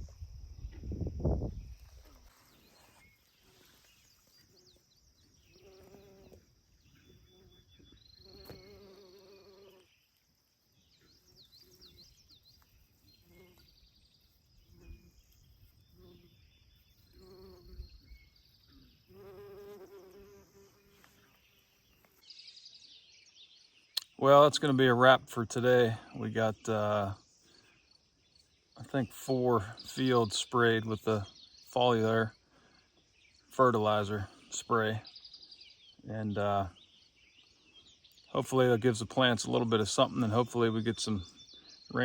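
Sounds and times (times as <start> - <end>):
flying insect buzzing: 1.8 - 10.0, 13.0 - 13.8, 14.5 - 22.2
faint bird chirps and whistles: 10.8 - 19.4.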